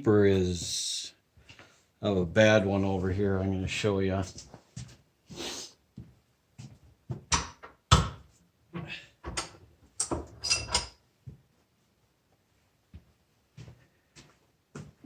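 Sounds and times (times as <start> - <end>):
metal tools knocking and clicking: 9.3 - 11.0.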